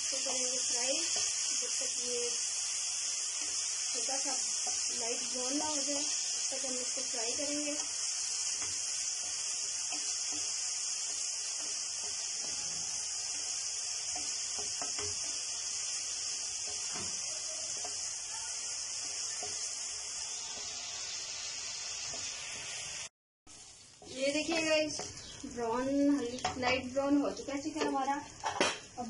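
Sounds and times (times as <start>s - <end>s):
chicken sizzling in hot oil: 0.0s - 29.0s
spatula tapping and scraping a pan: 8.5s - 15.4s, 16.6s - 18.1s, 24.0s - 25.4s, 26.1s - 26.9s, 27.7s - 28.9s.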